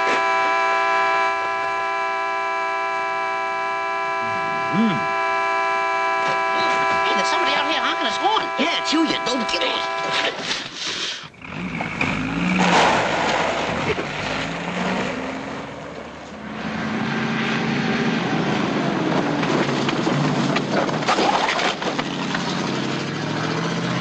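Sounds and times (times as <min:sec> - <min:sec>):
vehicle engine running: 0:00.0 - 0:10.7, 0:11.3 - 0:24.0
loud noisy burst: 0:02.7 - 0:10.8.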